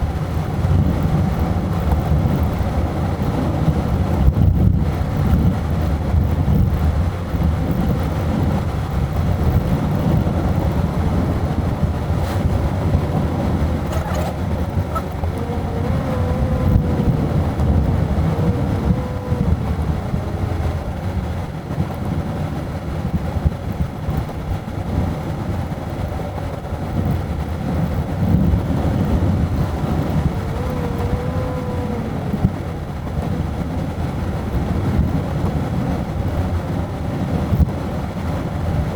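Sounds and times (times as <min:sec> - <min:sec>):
car engine and road noise: 0:00.0 - 0:38.9
faint wavering whines: 0:13.7 - 0:21.5, 0:29.3 - 0:33.0.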